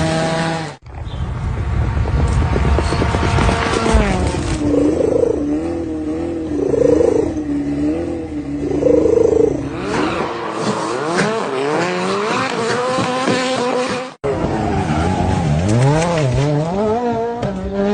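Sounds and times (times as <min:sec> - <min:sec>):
car engine revving: 0:01.5 - 0:17.9.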